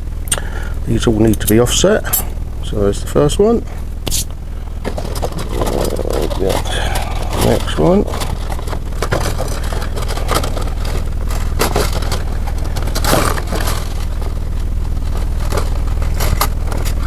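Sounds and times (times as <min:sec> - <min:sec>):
steady low hum: 0:00.0 - 0:17.0
metal rings clicking and scraping: 0:03.7 - 0:17.0.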